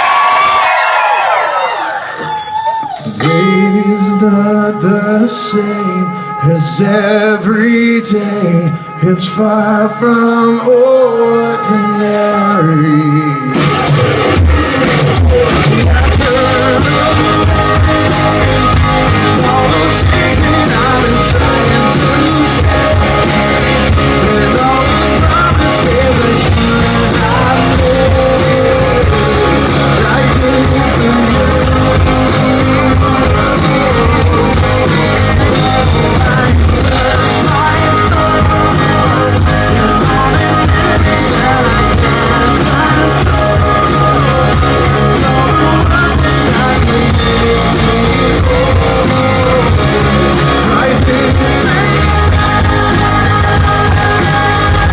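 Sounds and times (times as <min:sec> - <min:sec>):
live rock band: 0:00.0 - 0:54.9
person singing: 0:02.8 - 0:54.9.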